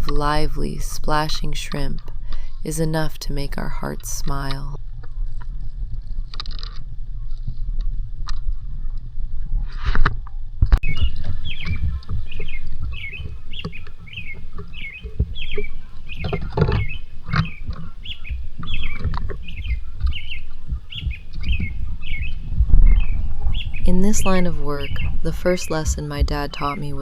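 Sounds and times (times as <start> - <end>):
steady low rumble: 0.0 - 27.0
bird chirping: 10.8 - 27.0.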